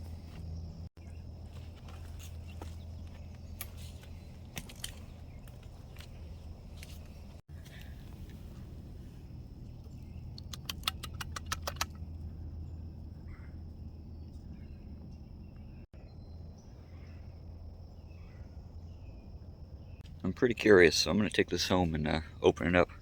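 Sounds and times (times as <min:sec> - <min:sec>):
sharp clicks: 0:10.2 - 0:12.1.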